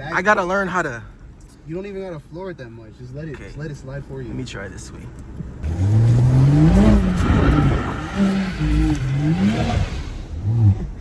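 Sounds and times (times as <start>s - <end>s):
car engine revving: 5.2s - 11.0s.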